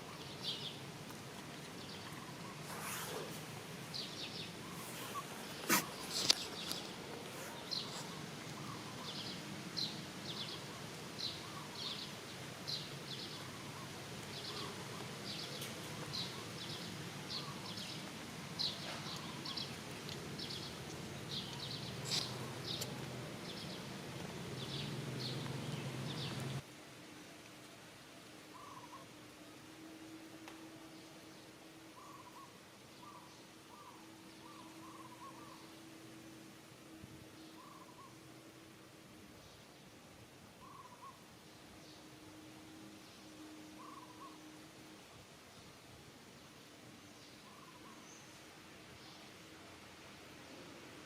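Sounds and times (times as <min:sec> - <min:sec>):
small animal chirping: 0:21.6 - 0:22.9.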